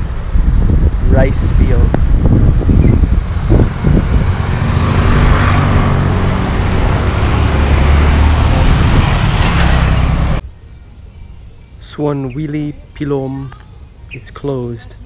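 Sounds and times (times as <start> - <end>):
vehicle engine hum: 0.0 - 11.0
rushing road noise: 0.0 - 11.1.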